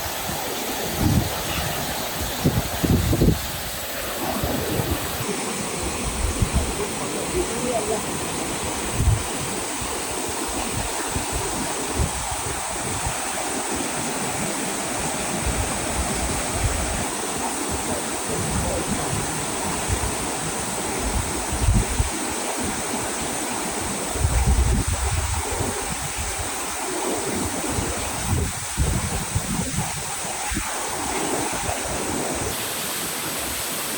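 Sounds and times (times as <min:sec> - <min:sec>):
wind buffeting microphone: 0:00.0 - 0:32.6
waterfall and stream rushing: 0:00.0 - 0:33.9.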